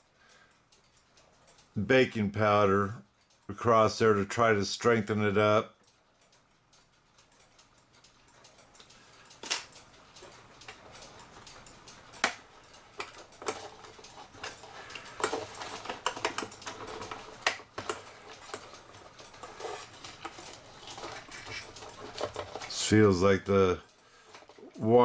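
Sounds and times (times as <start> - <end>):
clock parts clicking and tapping: 0.0 - 25.0.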